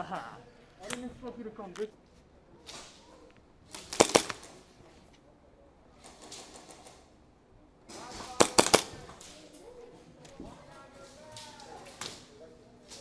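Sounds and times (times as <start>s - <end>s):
soft rustling: 0.4s - 7.2s, 7.9s - 13.0s
airsoft gun shots: 3.7s - 4.6s, 7.9s - 9.4s.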